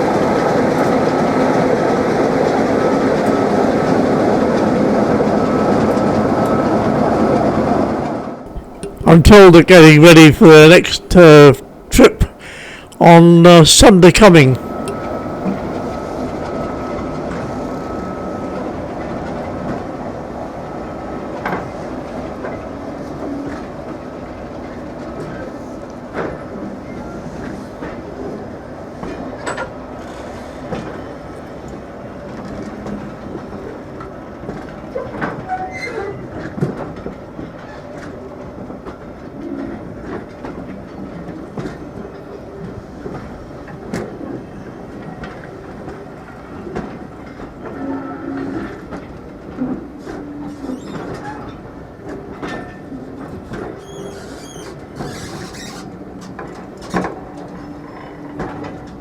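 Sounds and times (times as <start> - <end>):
train wheels clicking on rails: 0.0 - 6.5, 8.5 - 13.2, 14.4 - 47.8, 48.4 - 59.0
high-pitched wheel squeals: 50.4 - 51.6, 53.7 - 55.9.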